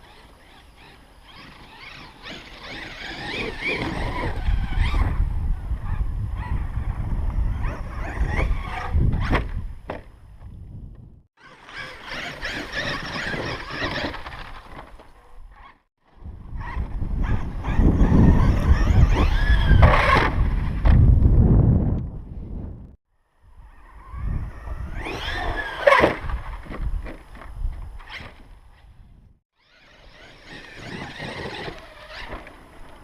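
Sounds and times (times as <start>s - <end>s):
electric motor whining: 0.0s - 9.7s, 11.4s - 14.8s, 16.2s - 21.2s, 23.6s - 27.1s, 29.6s - 33.0s
tyres on rough ground: 0.0s - 21.3s, 23.8s - 33.0s
wind buffeting microphone: 1.3s - 11.3s, 16.1s - 29.4s.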